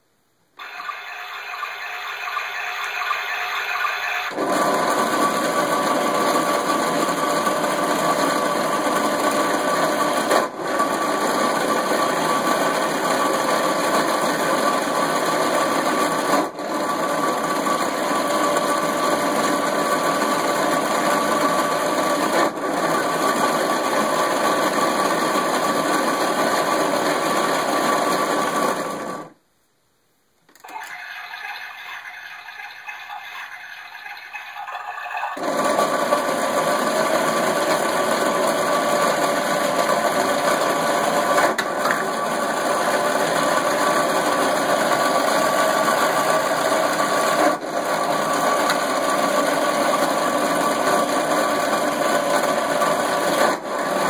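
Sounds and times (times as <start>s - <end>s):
harsh looping electronic buzz: 0.6s - 4.4s.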